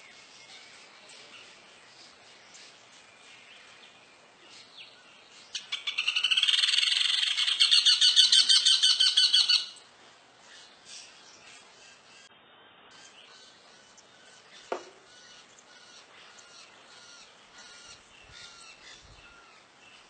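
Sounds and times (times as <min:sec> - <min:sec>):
bird chattering call: 0:05.6 - 0:09.8.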